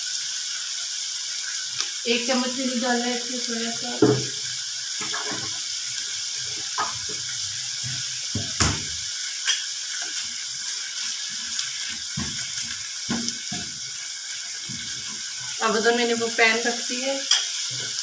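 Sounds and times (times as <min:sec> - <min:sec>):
chicken sizzling in a frying pan: 0:00.0 - 0:18.0
knocks against pan: 0:04.0 - 0:04.4, 0:08.3 - 0:09.6, 0:12.1 - 0:12.5, 0:13.1 - 0:13.8.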